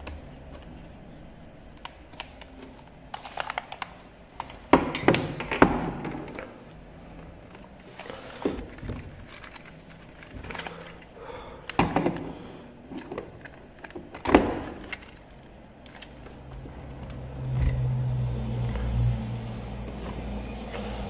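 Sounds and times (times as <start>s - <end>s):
low motor hum: 16.1s - 21.0s.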